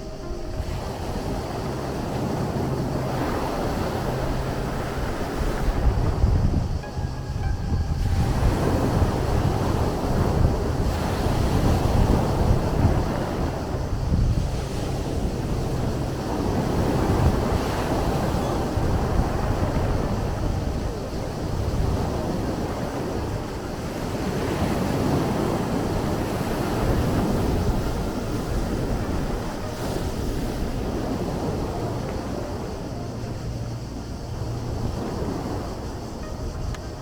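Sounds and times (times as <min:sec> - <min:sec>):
sea waves washing in: 0:00.0 - 0:37.0
wind buffeting microphone: 0:00.0 - 0:37.0.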